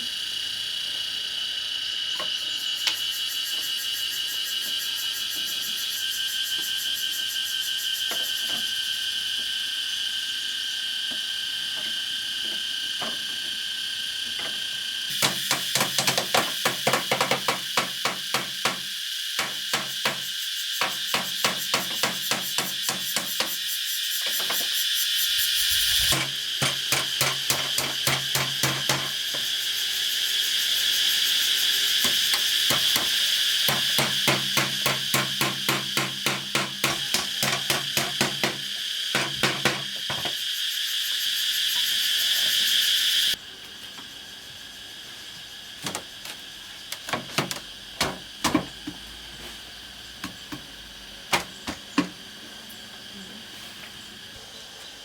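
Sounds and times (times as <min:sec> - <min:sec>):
insects chirping: 0:00.0 - 0:55.0
hammer blows on bamboo: 0:15.1 - 0:23.6, 0:25.8 - 0:29.4, 0:32.0 - 0:40.3.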